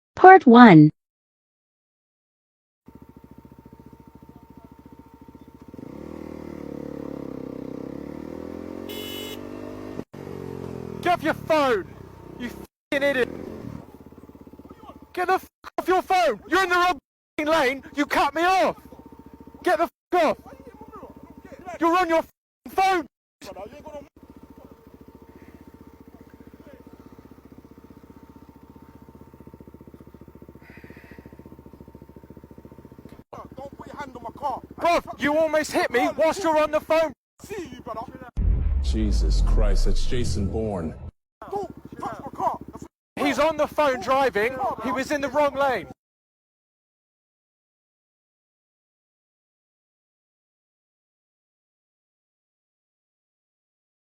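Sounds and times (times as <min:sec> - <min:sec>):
motorcycle engine revving: 0:02.9 - 0:45.8.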